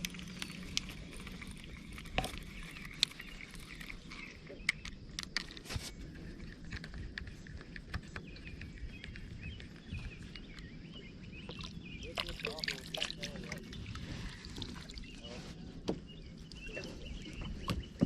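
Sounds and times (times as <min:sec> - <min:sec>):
small clicks and knocks: 0:00.0 - 0:10.7
steady outdoor background: 0:00.0 - 0:18.0.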